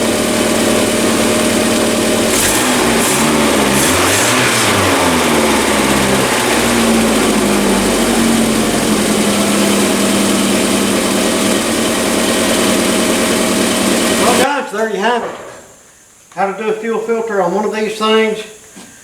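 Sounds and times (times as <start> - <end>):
car engine revving and idling: 0.0 - 14.4.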